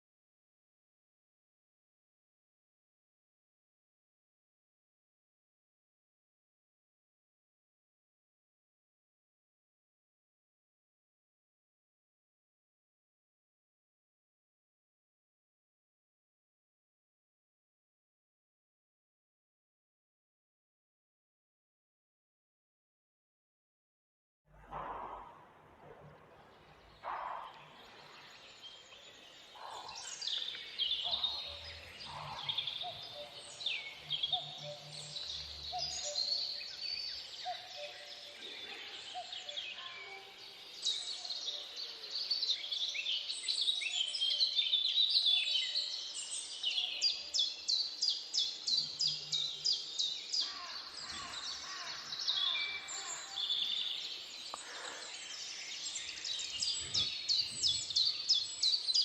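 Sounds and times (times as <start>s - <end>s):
birds singing in a forest: 24.5s - 59.0s.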